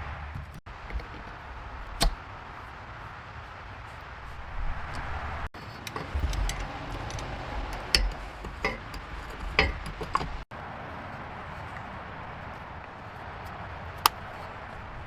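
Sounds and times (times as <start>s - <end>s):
sharp taps and clinks: 5.6s - 10.4s.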